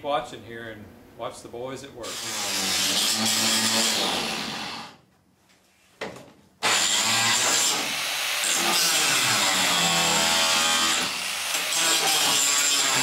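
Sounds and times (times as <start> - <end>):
power tool running: 2.0 - 5.0, 6.6 - 13.0.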